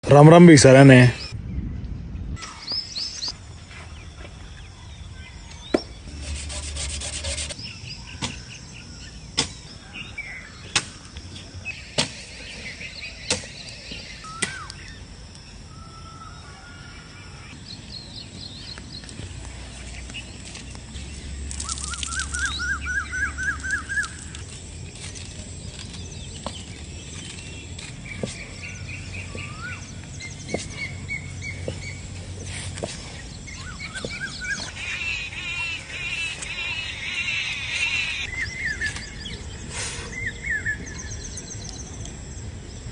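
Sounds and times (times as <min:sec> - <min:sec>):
rustling noise: 0:06.1 - 0:07.6
bird chirps and trills: 0:21.1 - 0:42.0.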